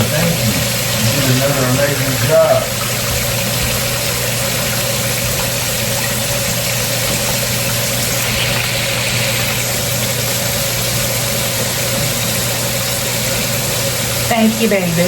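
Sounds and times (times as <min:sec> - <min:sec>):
motor hum: 0:00.0 - 0:15.0
even hiss: 0:07.9 - 0:11.1.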